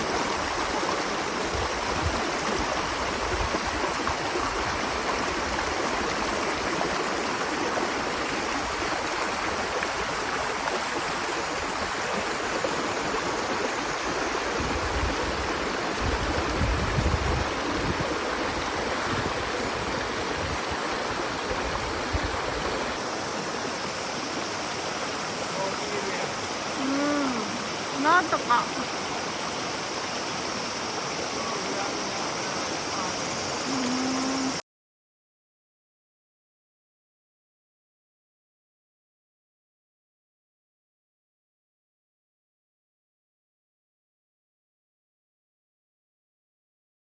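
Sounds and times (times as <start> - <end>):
river water rushing: 0.0 - 34.6.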